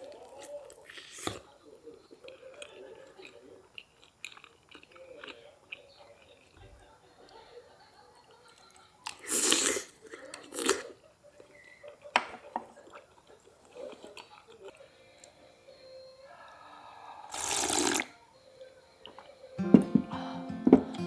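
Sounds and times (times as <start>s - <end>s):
person chewing crunchy food: 0.0s - 6.6s, 9.0s - 15.4s, 17.3s - 18.1s.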